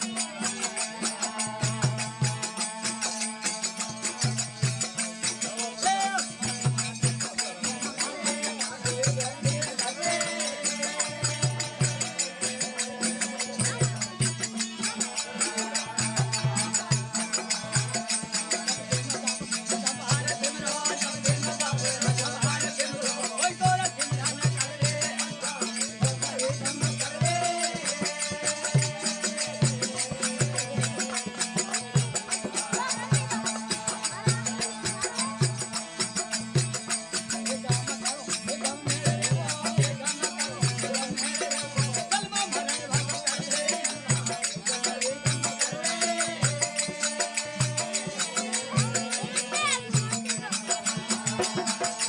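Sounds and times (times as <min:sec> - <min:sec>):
jingling percussion: 0:00.0 - 0:52.0.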